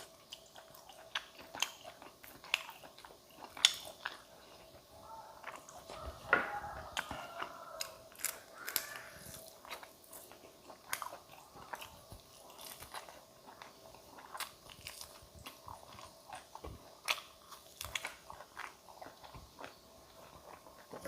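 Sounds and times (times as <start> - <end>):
crunchy chewing and bites: 0.0 - 21.0.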